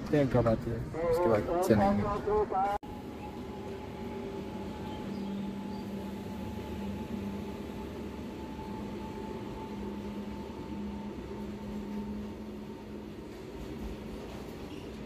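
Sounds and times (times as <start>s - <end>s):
train humming: 0.6s - 15.0s.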